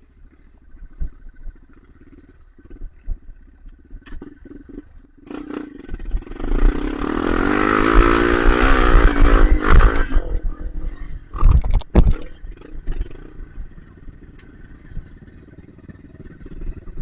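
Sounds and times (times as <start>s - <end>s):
dirt bike engine revving: 4.2s - 17.0s.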